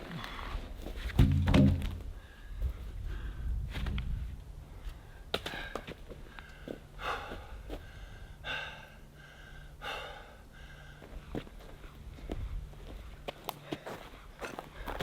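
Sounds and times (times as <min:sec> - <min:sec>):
faint steady hum: 0:00.0 - 0:15.0
person breathing in puffs: 0:05.5 - 0:11.2.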